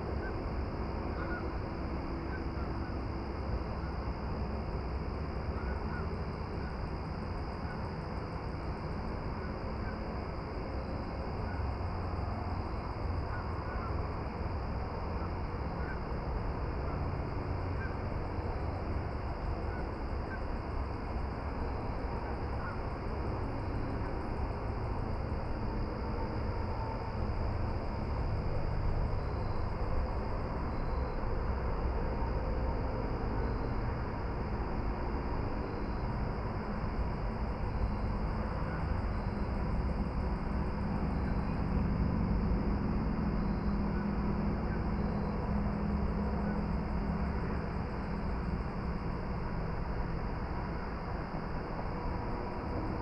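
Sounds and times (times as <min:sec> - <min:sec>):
low rumble and hiss of outdoor ambience: 0:00.0 - 0:53.0
faint short bird calls: 0:01.2 - 0:01.4.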